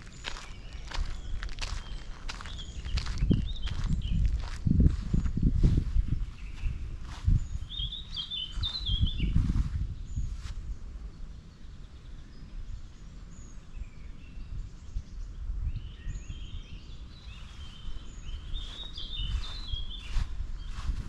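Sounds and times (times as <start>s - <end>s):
footsteps: 0.0s - 7.4s, 18.0s - 21.0s
steady low rumble: 0.0s - 11.4s
songbirds chirping: 0.0s - 21.0s.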